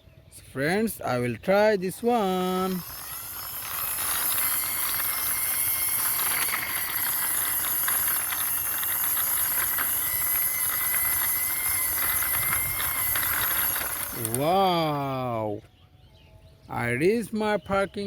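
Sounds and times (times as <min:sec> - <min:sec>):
toy car wheels rolling: 0:00.8 - 0:15.1.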